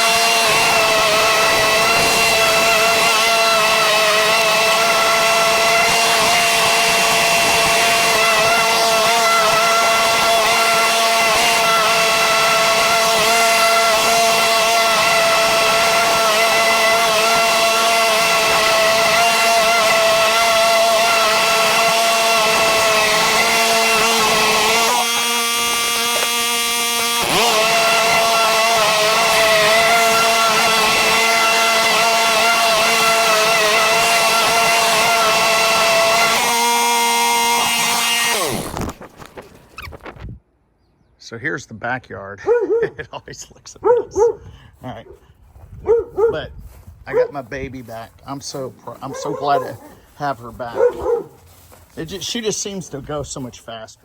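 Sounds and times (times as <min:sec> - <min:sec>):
small gasoline engine running: 0:00.0 - 0:39.8.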